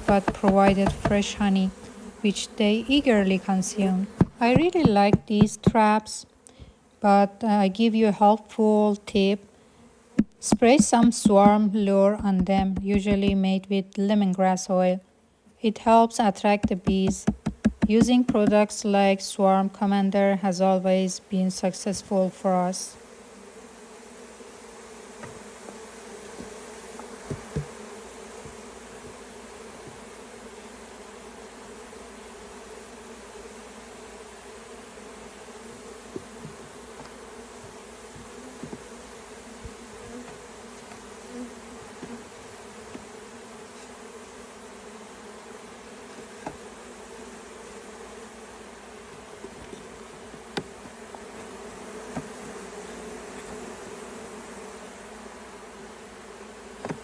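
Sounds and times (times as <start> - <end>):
faint taps: 0.0 - 2.0, 4.2 - 5.8, 10.2 - 13.5, 16.6 - 18.6, 26.4 - 27.8, 36.1 - 38.8
bees buzzing: 0.0 - 13.7, 15.8 - 57.0.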